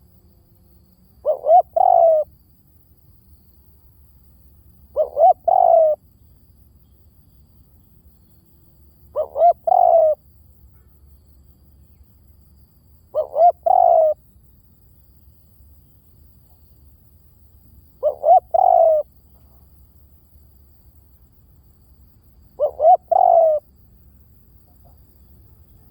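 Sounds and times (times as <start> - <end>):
dove cooing: 1.2 - 2.3, 4.9 - 6.0, 9.1 - 10.2, 13.1 - 14.2, 17.9 - 19.4, 22.5 - 23.7.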